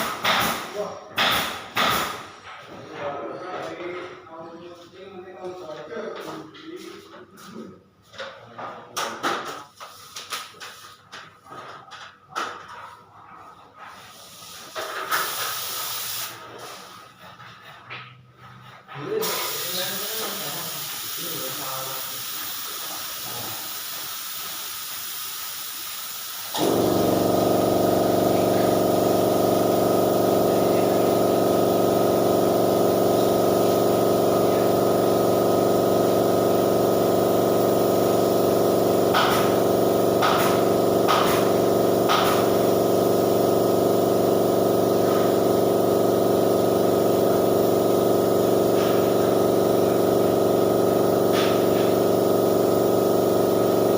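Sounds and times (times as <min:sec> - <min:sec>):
air compressor motor running: 0:00.0 - 0:02.3, 0:14.7 - 0:17.3, 0:19.1 - 0:53.9
compressed air hissing: 0:14.3 - 0:16.9, 0:19.2 - 0:53.9.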